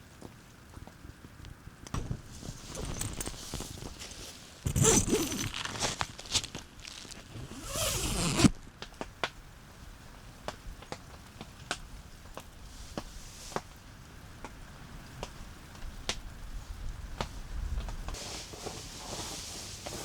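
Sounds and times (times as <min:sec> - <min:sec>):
light rustling: 0:02.1 - 0:08.5
zipper being pulled: 0:02.5 - 0:03.9, 0:04.7 - 0:08.5.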